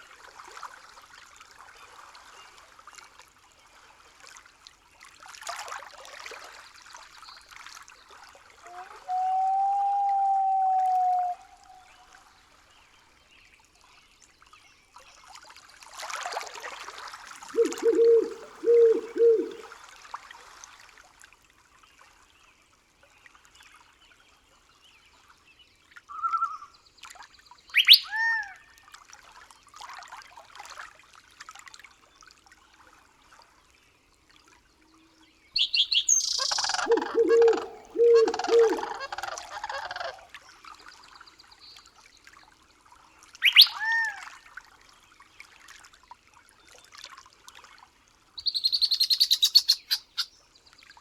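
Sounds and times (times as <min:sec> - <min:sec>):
trickling water: 0:15.1 - 0:21.0, 0:35.6 - 0:47.8
birds calling: 0:17.5 - 0:19.7, 0:27.8 - 0:28.1, 0:35.6 - 0:40.2, 0:43.4 - 0:44.0, 0:48.4 - 0:50.3
faint bird chirps: 0:17.6 - 0:19.7, 0:27.8 - 0:28.2, 0:35.6 - 0:40.2, 0:43.4 - 0:44.0, 0:48.4 - 0:50.3
bird whistled sweep: 0:27.8 - 0:28.1, 0:35.6 - 0:39.0, 0:43.4 - 0:43.8, 0:48.4 - 0:50.3.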